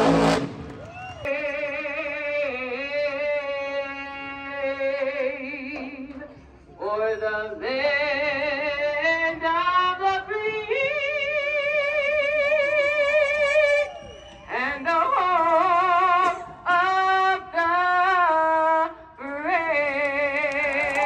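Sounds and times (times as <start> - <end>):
person singing with vibrato: 14.5 - 21.0.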